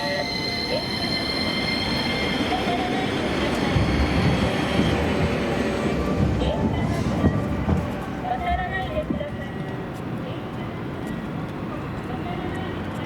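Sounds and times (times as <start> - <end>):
tram wheels squealing: 0.0 - 7.7
tram running rumble: 0.0 - 13.0.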